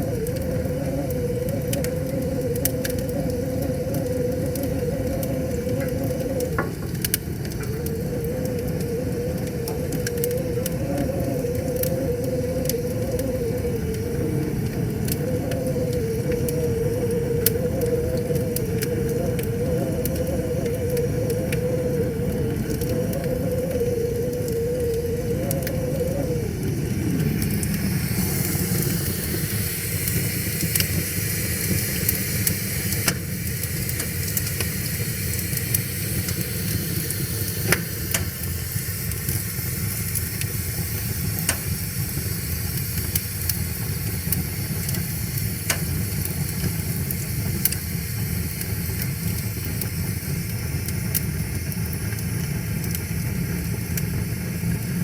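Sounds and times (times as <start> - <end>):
thin whistling tone sliding down: 0.0 - 6.8, 7.6 - 30.0
wood fire crackling and popping: 0.0 - 55.0.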